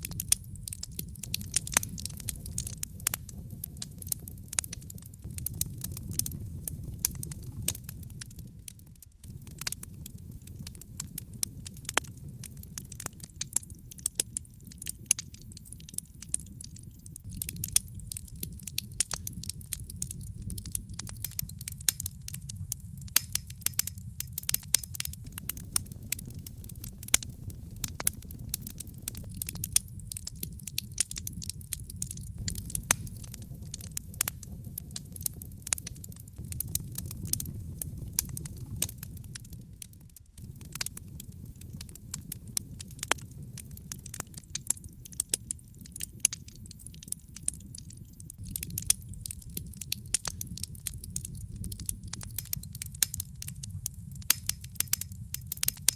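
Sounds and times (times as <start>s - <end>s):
wood fire crackling: 0.0s - 55.9s
steady low rumble: 5.2s - 13.2s, 17.3s - 39.6s.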